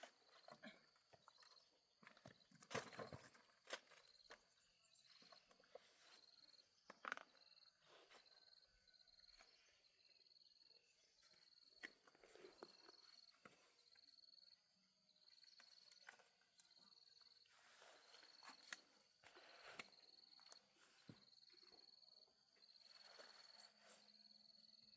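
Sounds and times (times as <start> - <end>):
faint cricket trill: 0.0 - 24.9.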